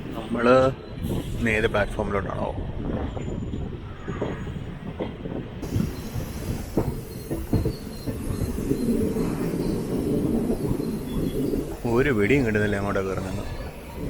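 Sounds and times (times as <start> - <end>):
train wheels knocking over rail joints: 4.2 - 14.0.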